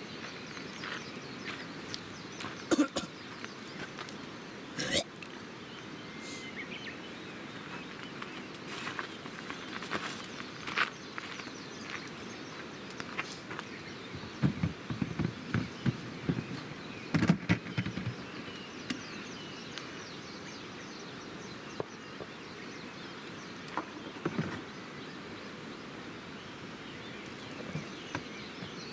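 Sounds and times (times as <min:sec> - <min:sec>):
outdoor hiss: 0:00.0 - 0:15.0
low knocks and thuds: 0:14.2 - 0:18.2.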